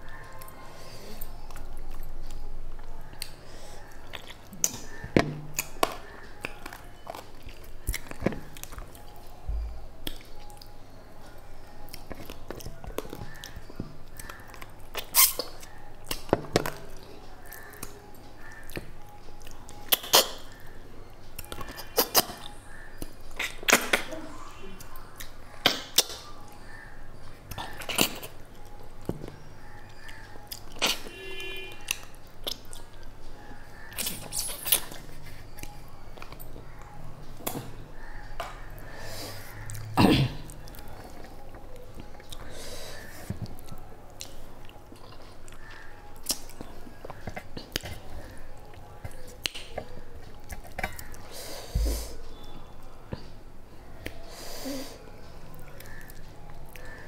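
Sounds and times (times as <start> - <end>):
wet chewing: 1.2 - 9.4, 27.4 - 51.3.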